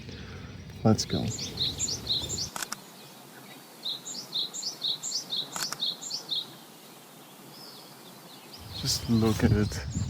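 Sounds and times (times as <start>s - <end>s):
sharp click: 5.5s - 5.8s.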